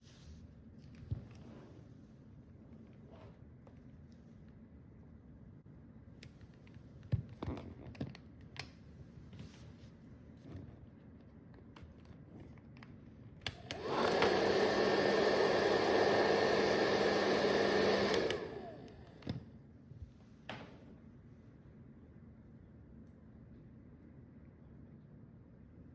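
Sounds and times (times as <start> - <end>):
hair dryer whirring: 13.5 - 19.4.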